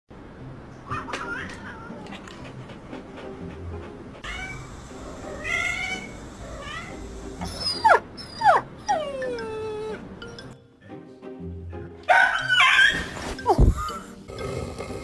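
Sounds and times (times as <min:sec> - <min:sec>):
pet animal calling: 0:04.2 - 0:10.0
sharp falling yelps: 0:12.1 - 0:14.0.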